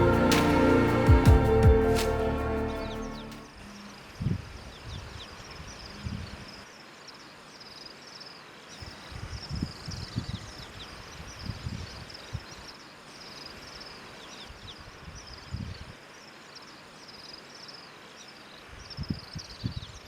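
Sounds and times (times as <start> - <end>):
low thumps: 0.0 - 3.0.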